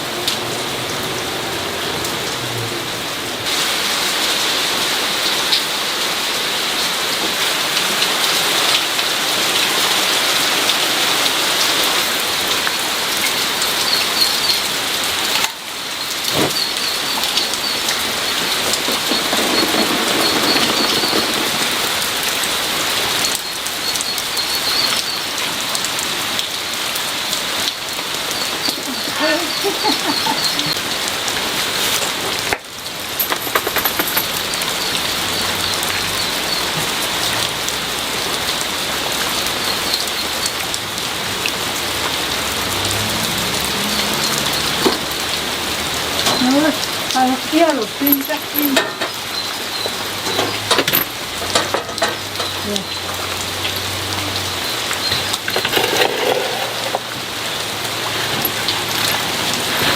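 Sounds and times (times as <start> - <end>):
rain falling on a surface: 0.0 - 59.9
small birds chirping: 13.3 - 15.0, 15.9 - 25.4, 28.2 - 30.9.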